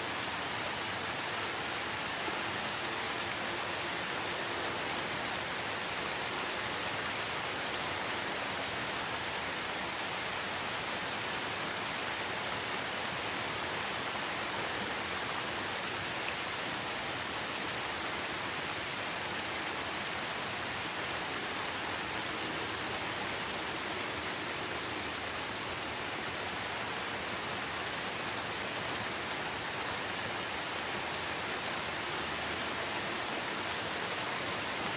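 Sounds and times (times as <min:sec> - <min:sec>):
rain falling on foliage: 0:00.0 - 0:34.9.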